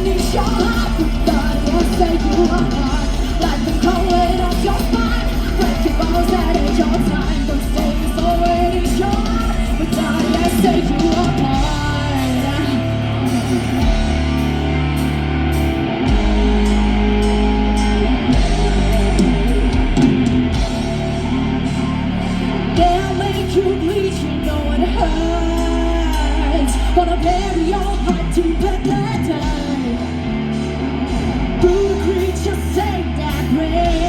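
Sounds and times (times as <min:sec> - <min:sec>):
person singing: 0:00.0 - 0:14.2, 0:21.5 - 0:34.0
bass guitar: 0:00.0 - 0:34.0
distorted electric guitars: 0:00.0 - 0:34.0
drum kit: 0:00.0 - 0:34.0.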